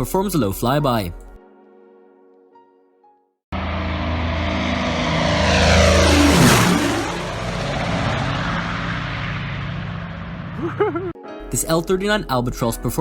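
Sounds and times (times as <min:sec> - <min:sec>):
propeller aircraft passing: 0:03.6 - 0:11.2.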